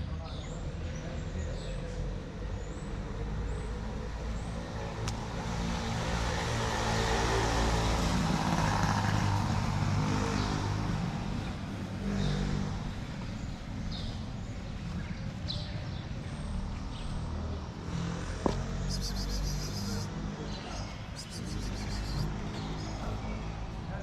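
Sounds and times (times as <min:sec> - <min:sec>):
motor vehicle passing: 0:03.9 - 0:14.5, 0:16.8 - 0:24.0
small birds chirping: 0:10.2 - 0:24.0.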